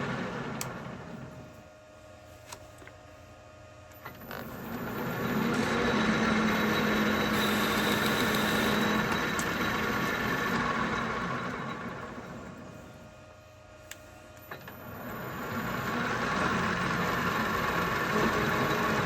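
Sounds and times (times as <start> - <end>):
lathe cutting with hum and hiss: 4.5 - 13.0, 14.9 - 19.0.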